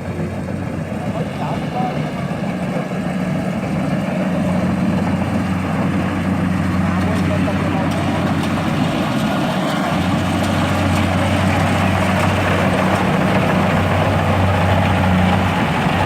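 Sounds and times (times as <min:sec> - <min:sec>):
heavy engine humming: 0:00.0 - 0:16.0.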